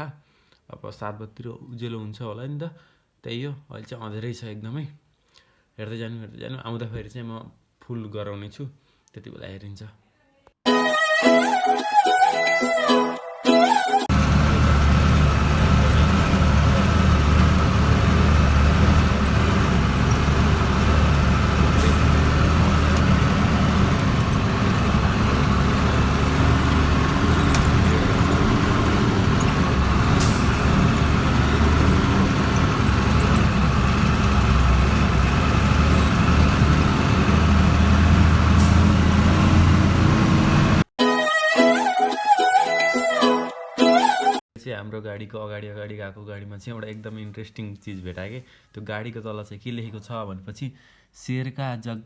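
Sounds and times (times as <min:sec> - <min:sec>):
truck engine driving: 0:14.1 - 0:40.9.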